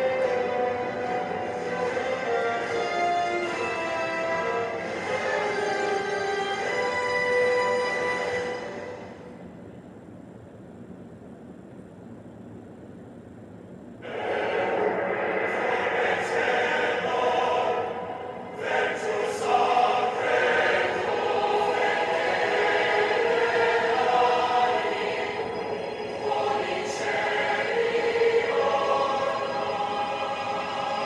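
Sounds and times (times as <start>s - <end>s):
choir singing: 0.0s - 9.0s, 14.0s - 31.0s.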